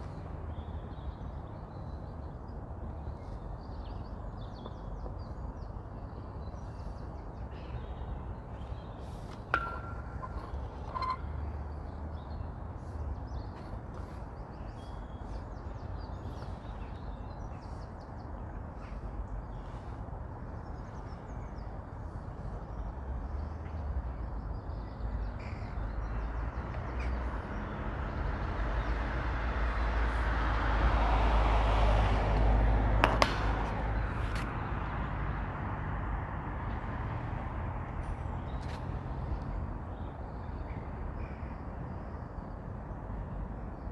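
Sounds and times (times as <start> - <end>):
vehicle passing by: 27.4 - 39.2.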